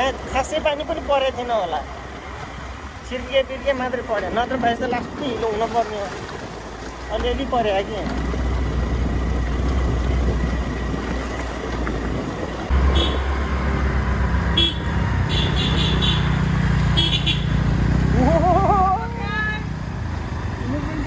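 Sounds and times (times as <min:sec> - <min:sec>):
motor scooter engine: 0:00.0 - 0:21.0
wind rumble on microphone: 0:08.2 - 0:15.9
vehicle horn beeps: 0:12.7 - 0:13.5, 0:14.4 - 0:17.6.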